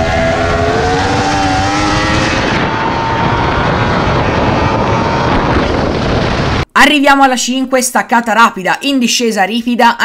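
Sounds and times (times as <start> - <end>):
motorcycle engine accelerating: 0.0 - 6.7
wind noise at speed: 0.0 - 6.7.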